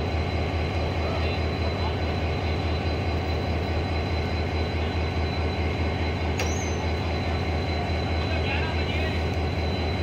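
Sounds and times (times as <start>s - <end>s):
passenger train rumbling: 0.0s - 10.0s.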